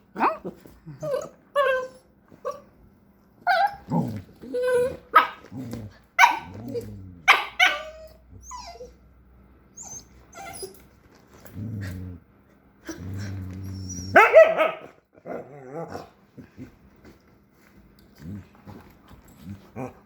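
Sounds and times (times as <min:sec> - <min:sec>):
puppy growling: 0:03.6 - 0:08.9, 0:11.4 - 0:14.2, 0:15.1 - 0:16.8
puppy barking: 0:05.1 - 0:05.4, 0:06.2 - 0:06.6, 0:07.2 - 0:08.1, 0:14.1 - 0:15.0.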